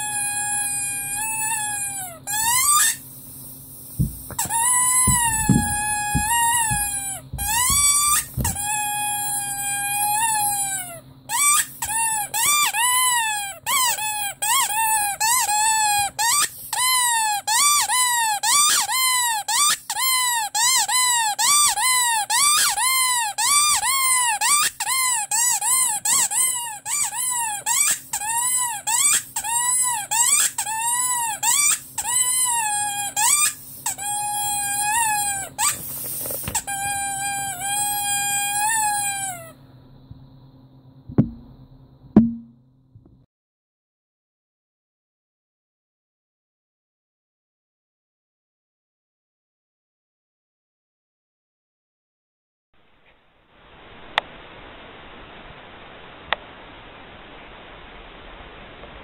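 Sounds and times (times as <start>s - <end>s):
rubber squeaky toy squeaking: 0.0s - 3.0s, 4.0s - 39.5s
air hiss: 3.0s - 4.6s, 35.7s - 36.7s.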